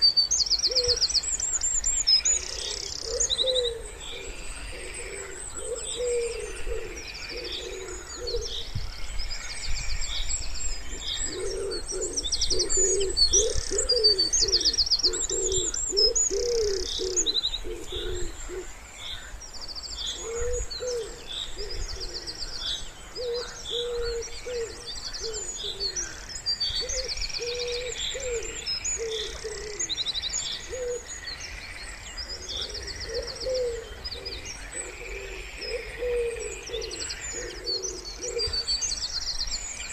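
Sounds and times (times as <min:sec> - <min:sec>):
songbirds chirping and trilling: 0:00.0 - 0:39.9
wood pigeons cooing: 0:00.6 - 0:01.1, 0:02.3 - 0:08.8, 0:10.9 - 0:18.7, 0:20.1 - 0:26.2, 0:26.8 - 0:29.9, 0:30.6 - 0:31.1, 0:32.3 - 0:38.8.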